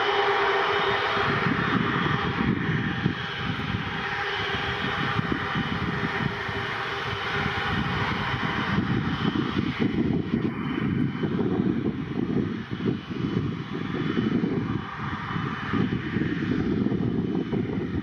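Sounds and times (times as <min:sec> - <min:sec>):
faint engine whine: 0:00.0 - 0:18.0
jet engines roaring: 0:00.0 - 0:18.0.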